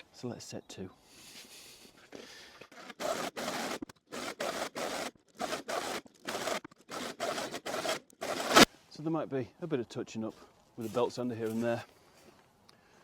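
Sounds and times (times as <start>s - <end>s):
power planer cutting wood: 2.9s - 8.7s.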